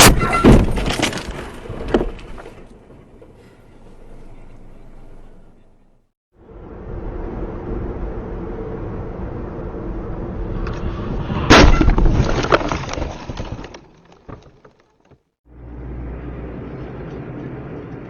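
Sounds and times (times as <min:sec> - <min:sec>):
car collision with crunching metal: 0:00.0 - 0:02.4, 0:11.5 - 0:14.9
road and engine noise: 0:00.0 - 0:11.7, 0:14.1 - 0:18.0.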